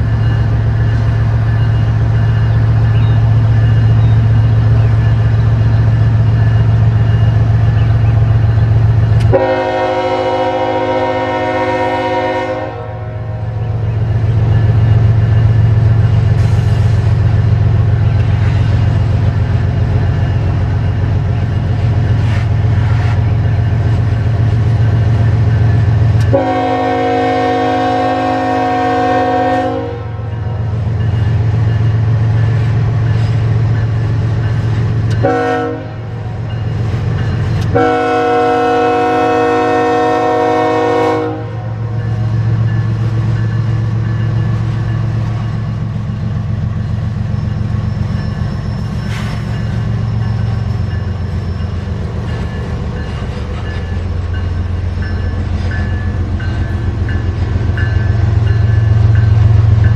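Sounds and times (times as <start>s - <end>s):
diesel freight train rumbling: 0.0s - 59.9s
locomotive air horn: 9.3s - 13.4s, 26.2s - 30.3s, 35.2s - 36.1s, 37.7s - 41.7s.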